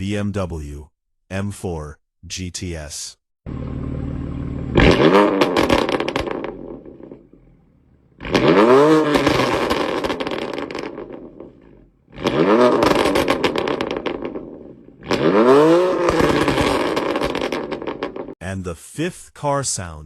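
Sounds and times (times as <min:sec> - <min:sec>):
car engine revving: 0:03.5 - 0:18.4
exhaust popping and crackling: 0:03.5 - 0:18.4.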